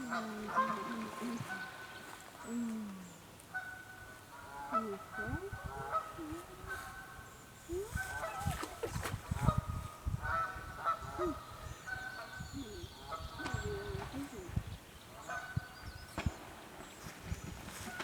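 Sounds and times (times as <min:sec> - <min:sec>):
geese honking: 0:00.0 - 0:02.1.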